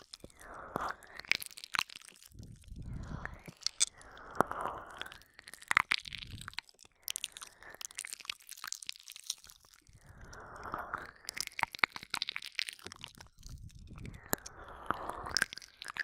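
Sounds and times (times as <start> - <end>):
soft breathing: 0.0 - 1.5, 2.2 - 5.4, 9.9 - 11.4, 13.5 - 16.0
wet mouth sounds: 0.0 - 16.0.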